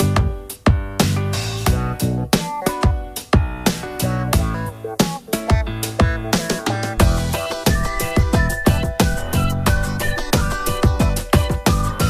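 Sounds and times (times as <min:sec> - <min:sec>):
electronic music: 0:07.0 - 0:12.0
falling bass sweeps: 0:07.0 - 0:12.0
fast drum beat: 0:07.0 - 0:12.0.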